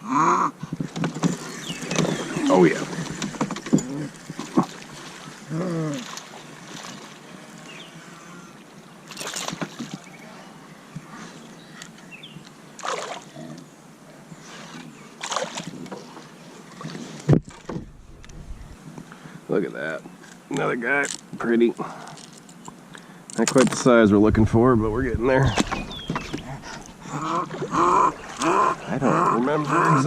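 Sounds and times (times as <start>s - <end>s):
water splashing at a kayak: 0.6s - 8.0s, 9.0s - 10.3s, 12.8s - 13.3s, 14.5s - 18.8s, 24.4s - 30.0s.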